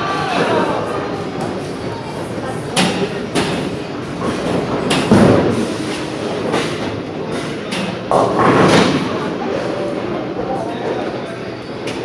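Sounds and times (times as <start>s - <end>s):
bowling balls rolling: 3.2s - 9.8s.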